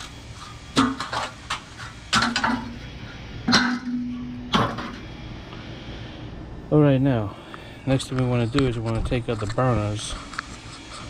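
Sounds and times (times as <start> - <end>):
metal grill parts clanking: 3.5 - 5.0.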